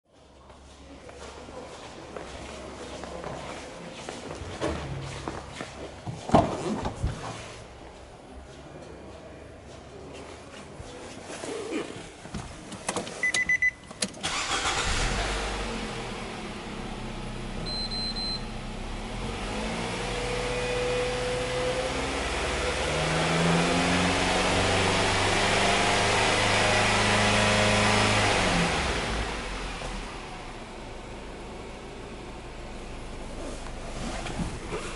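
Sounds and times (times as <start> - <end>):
short electronic beep: 13.2 - 13.8, 17.6 - 18.5
car engine starting and revving: 14.2 - 17.6, 18.4 - 32.4.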